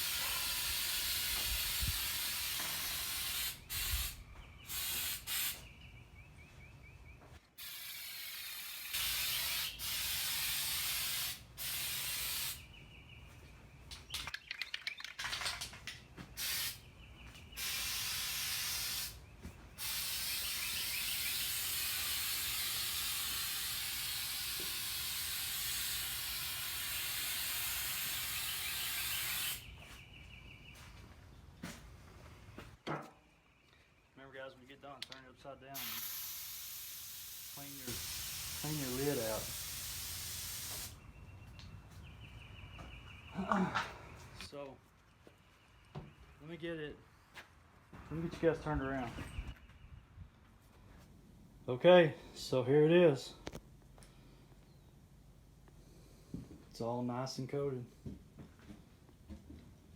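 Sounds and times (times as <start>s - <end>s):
aerosol can spraying: 0.0s - 5.6s, 7.6s - 12.6s, 16.4s - 16.8s, 17.6s - 19.2s, 19.8s - 29.7s, 35.8s - 41.0s.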